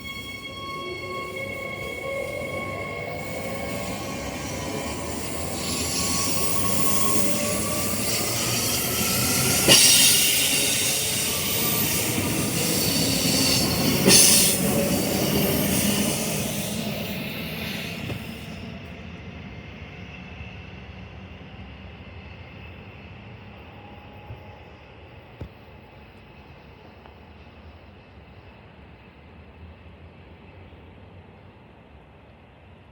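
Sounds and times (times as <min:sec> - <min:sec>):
train wheels squealing: 0:00.0 - 0:30.8
electric train running on rails: 0:00.0 - 0:32.9
sharp hissing bursts: 0:03.2 - 0:18.5.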